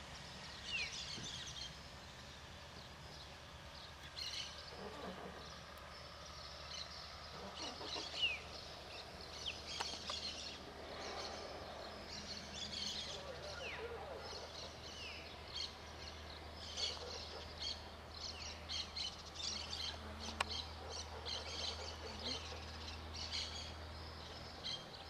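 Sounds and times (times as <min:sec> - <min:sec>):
birds chirping: 0:00.1 - 0:25.0.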